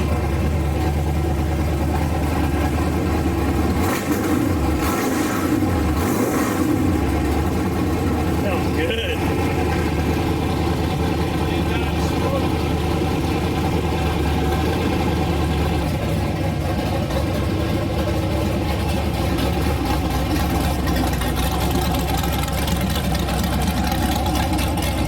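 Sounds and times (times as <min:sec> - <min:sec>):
engine idling with open headers: 0:00.0 - 0:25.0.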